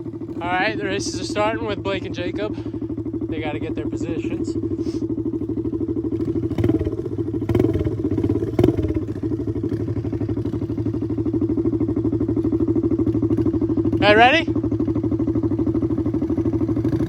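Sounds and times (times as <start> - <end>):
motorbike engine idling: 0.0 - 17.0.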